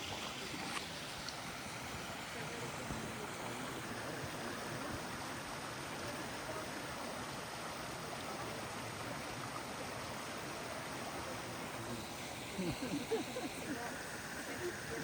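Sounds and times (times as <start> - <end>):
running water: 0.0 - 15.0.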